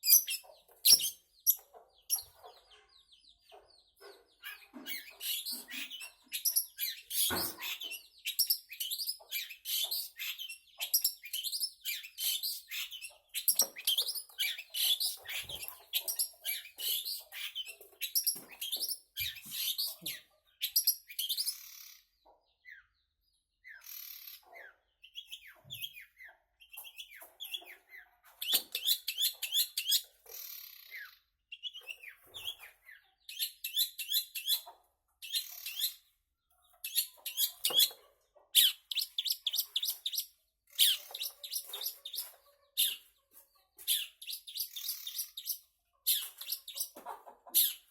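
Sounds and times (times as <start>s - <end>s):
bird singing high chattering phrases: 0.0s - 22.9s, 23.6s - 47.9s.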